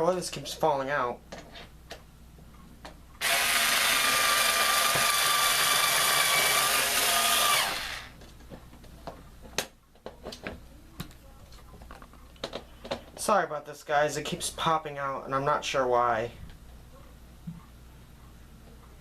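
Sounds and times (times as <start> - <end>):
electric screwdriver running: 3.2 - 8.1.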